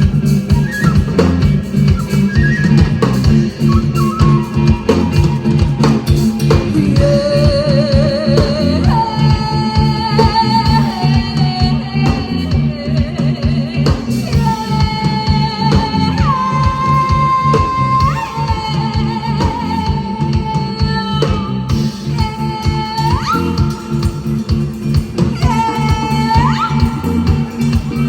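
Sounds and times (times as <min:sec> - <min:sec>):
wavering held melody line: 0:00.0 - 0:21.0
bass: 0:00.0 - 0:28.0
drum beat: 0:00.0 - 0:28.0
guitar: 0:00.0 - 0:28.0.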